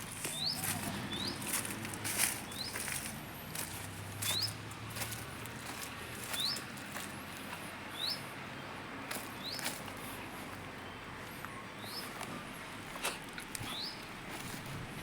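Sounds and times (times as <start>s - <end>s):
small bird chirping: 13.6s - 14.1s.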